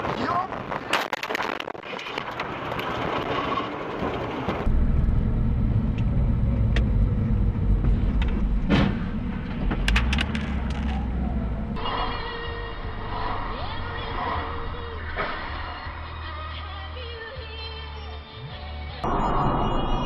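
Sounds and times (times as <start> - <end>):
car engine and tyres rumbling: 0.0 - 20.0
clicks: 9.7 - 11.1.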